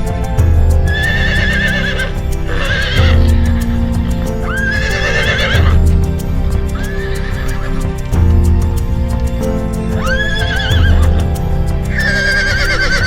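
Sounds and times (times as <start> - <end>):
background music with steady beat: 0.0 - 13.0
horse whinnying: 1.0 - 3.2, 4.5 - 5.8, 12.0 - 13.0.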